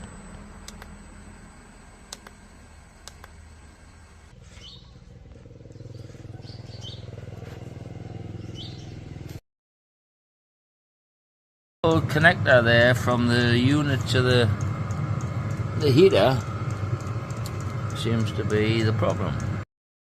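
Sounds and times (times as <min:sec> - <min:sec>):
low mechanical hum: 0:00.0 - 0:09.4, 0:11.8 - 0:19.7
sharp clicks: 0:00.6 - 0:01.0, 0:02.1 - 0:02.4, 0:03.0 - 0:03.4, 0:14.6 - 0:19.6
short bird chirps: 0:04.5 - 0:05.0.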